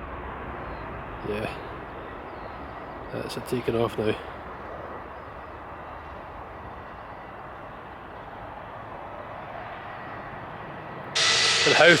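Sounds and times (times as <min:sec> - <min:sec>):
distant jet taking off: 0:00.0 - 0:12.0.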